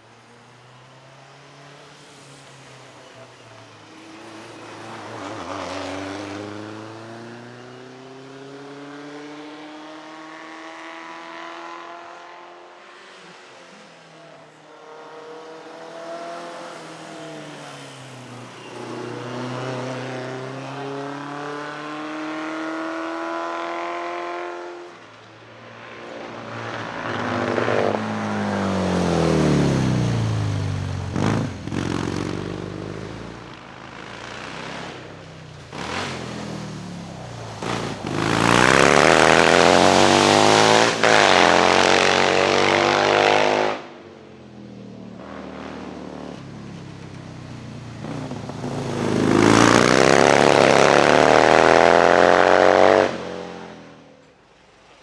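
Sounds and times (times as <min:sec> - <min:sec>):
racing car engine accelerating: 0:26.2 - 0:44.0, 0:48.1 - 0:54.0.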